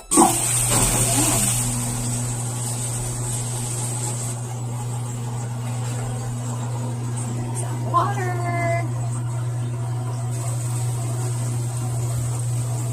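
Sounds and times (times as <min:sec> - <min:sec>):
washing machine hiss: 0:00.0 - 0:12.9
washing machine hum: 0:00.0 - 0:12.9.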